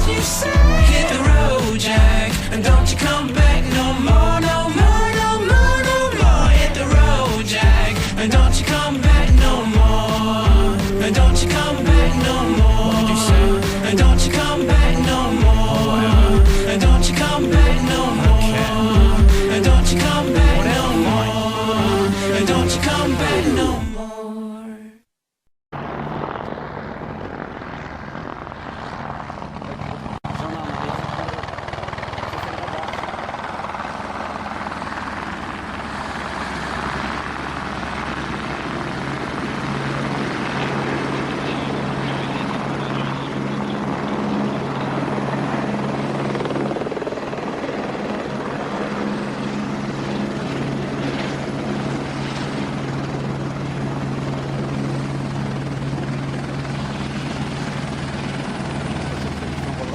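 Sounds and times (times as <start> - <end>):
light aircraft engine and propeller: 25.8 - 59.9.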